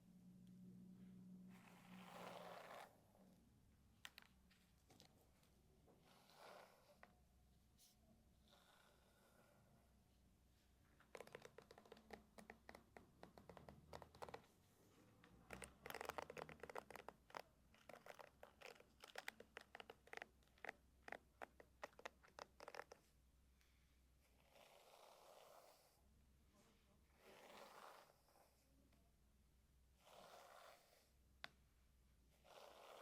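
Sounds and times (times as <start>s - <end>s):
hairbrush stroking through hair: 1.5s - 3.0s, 24.4s - 26.0s, 27.1s - 28.6s, 30.0s - 31.1s, 32.4s - 33.0s.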